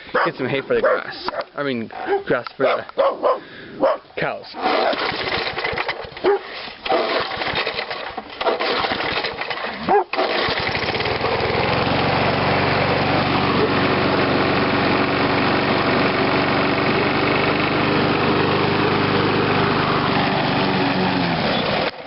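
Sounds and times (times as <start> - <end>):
dog barking: 0.1 - 4.1, 6.2 - 6.5, 9.8 - 10.2
mower engine sputtering and running: 4.6 - 22.0.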